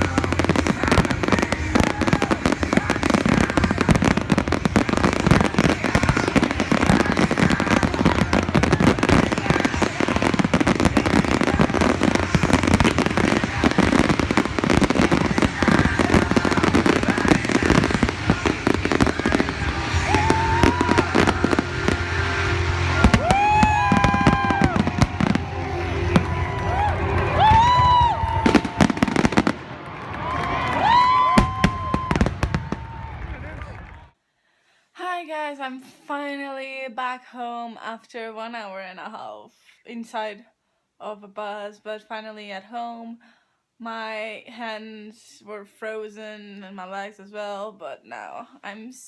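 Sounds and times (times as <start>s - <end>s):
fireworks crackling: 0.0s - 34.1s.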